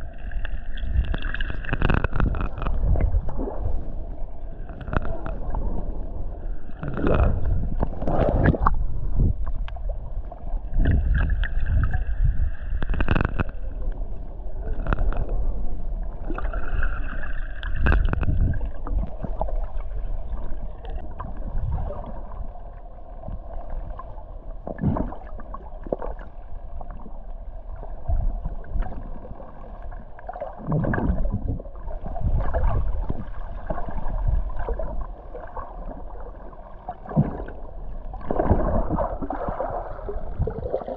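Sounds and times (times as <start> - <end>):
water gurgling and sloshing: 0.0 - 40.9.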